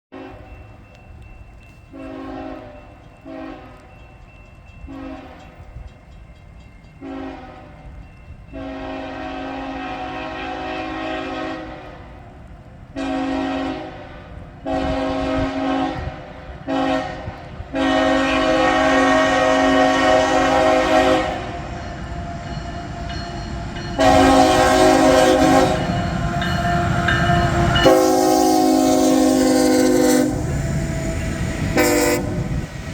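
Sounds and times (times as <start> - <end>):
locomotive rumble: 0.2 - 32.9
locomotive air horn blasts: 1.9 - 3.9, 4.9 - 5.5, 7.0 - 7.8, 8.5 - 12.2, 13.0 - 23.2, 24.0 - 32.7.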